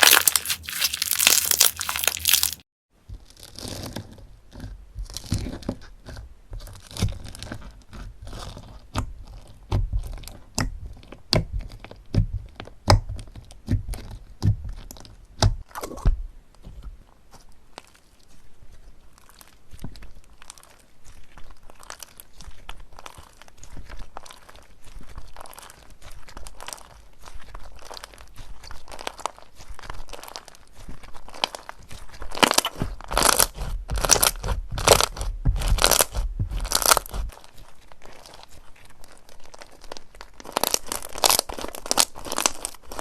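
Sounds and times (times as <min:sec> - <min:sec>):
crunchy slime squeezed by hand: 0:00.0 - 0:02.6, 0:32.4 - 0:37.2.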